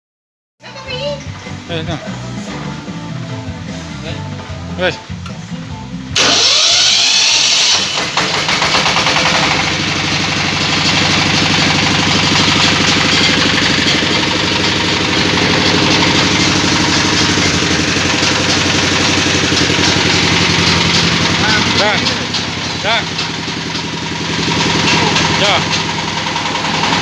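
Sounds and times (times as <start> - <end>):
grinding machine motor running: 6.2 - 27.0.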